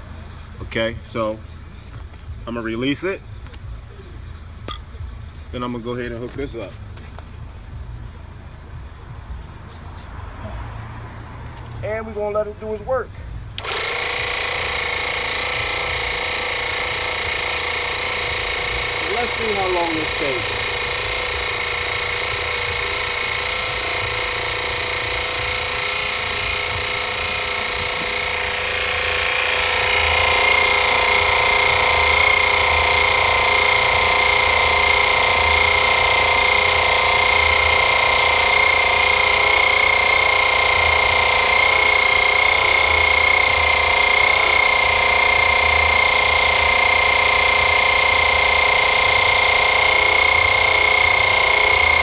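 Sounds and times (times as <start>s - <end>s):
air compressor running: 0.0s - 52.0s
high steady whine: 13.6s - 52.0s.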